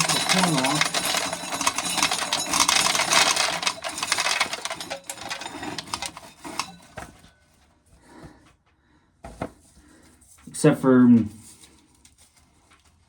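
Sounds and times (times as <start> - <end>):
corn sheller crackling rattle: 0.0 - 7.3.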